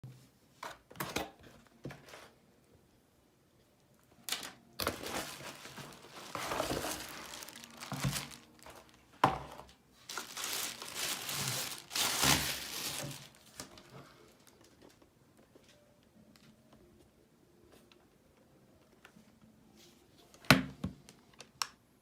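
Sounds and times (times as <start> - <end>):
packaging being crumpled: 4.3 - 9.1, 10.0 - 14.7.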